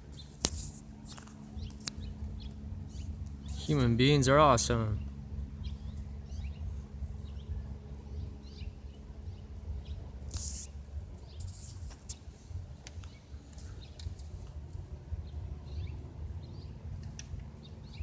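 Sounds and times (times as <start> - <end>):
low steady rumble: 0.0 - 18.0
brief hissing noises: 10.3 - 10.7.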